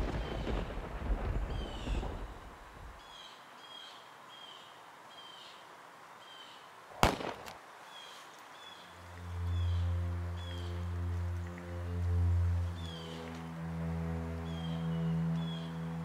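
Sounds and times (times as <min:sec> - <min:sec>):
bird chirping: 0:07.9 - 0:16.0.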